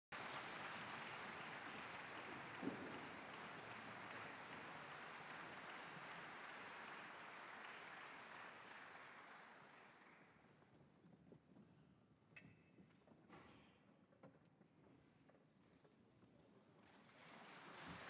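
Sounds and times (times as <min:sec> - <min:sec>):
audience applause: 0:00.1 - 0:10.5, 0:16.8 - 0:18.0.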